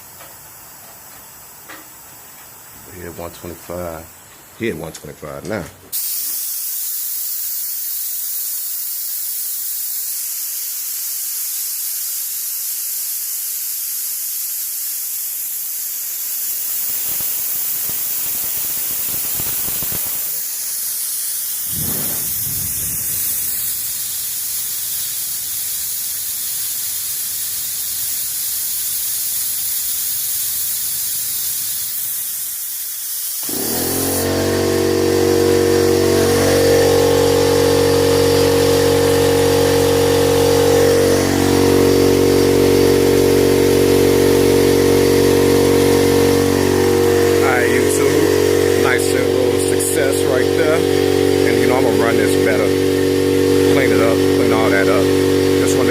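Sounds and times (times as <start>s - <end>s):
compressed air hissing: 5.9s - 55.9s
air compressor motor humming: 16.5s - 20.6s, 21.5s - 26.3s, 33.4s - 55.9s.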